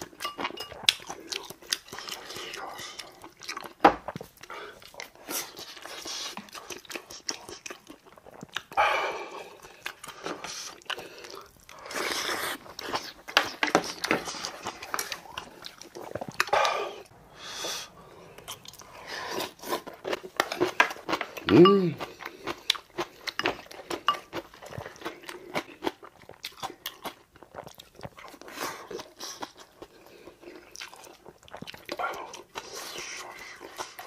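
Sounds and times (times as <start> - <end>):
man chewing and crunching: 0.0 - 34.0
breathing: 16.5 - 19.4.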